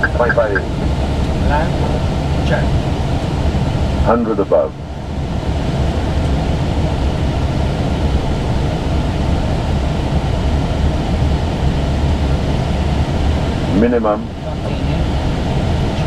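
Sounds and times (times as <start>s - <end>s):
airflow and engine noise in cockpit: 0.0s - 16.0s.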